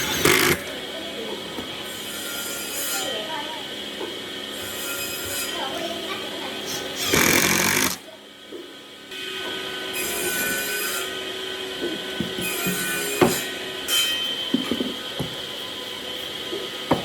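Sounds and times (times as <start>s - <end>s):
scraping or sanding wood: 0.0s - 0.6s, 6.6s - 8.0s.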